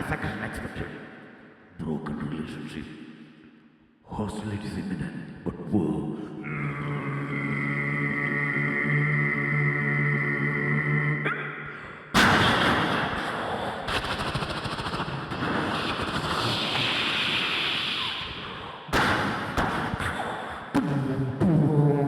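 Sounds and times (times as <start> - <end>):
vocal blast: 6.2 - 22.0
vocal gunfire and explosion noise: 12.1 - 21.4.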